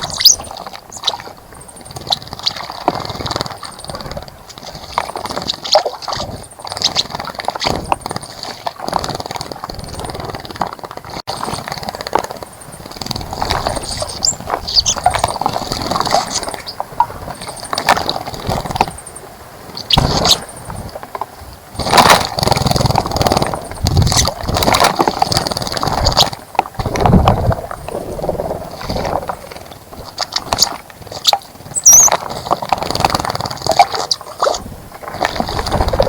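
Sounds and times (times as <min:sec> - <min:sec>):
birds splashing water: 0:00.0 - 0:19.1, 0:21.7 - 0:36.0
faint high-pitched chirps: 0:31.8 - 0:32.1.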